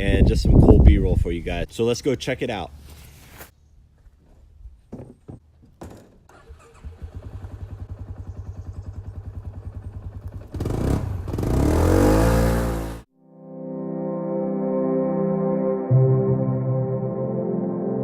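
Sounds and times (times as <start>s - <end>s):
knocks: 4.9s - 6.2s
engine chugging and revving: 6.8s - 13.0s.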